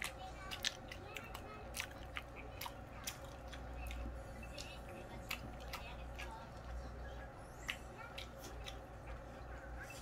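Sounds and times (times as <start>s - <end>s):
person chewing and biting food: 7.5s - 10.0s.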